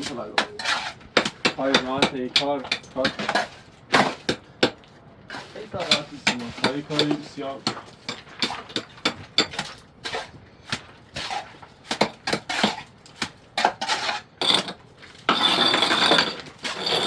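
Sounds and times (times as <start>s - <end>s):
trowel scraping mortar: 0.0s - 4.4s, 5.3s - 17.0s
trowel clinking on stone: 13.6s - 17.0s.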